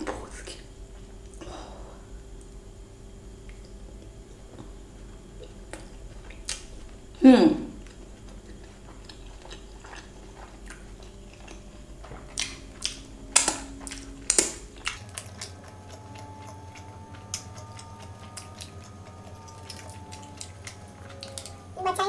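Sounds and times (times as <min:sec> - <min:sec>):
wet chewing clicks: 0:03.4 - 0:04.7, 0:05.4 - 0:22.0
person chewing food: 0:03.4 - 0:21.8
loud food crunches: 0:05.4 - 0:07.1, 0:07.8 - 0:21.7.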